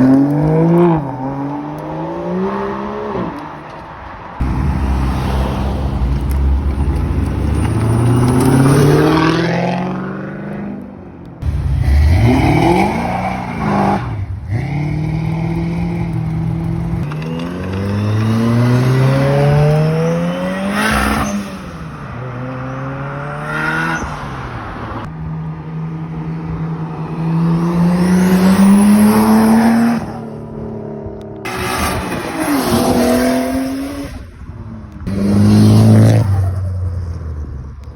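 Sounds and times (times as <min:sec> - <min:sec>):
car passing close by: 0:04.4 - 0:10.5
car engines accelerating hard: 0:04.4 - 0:34.3.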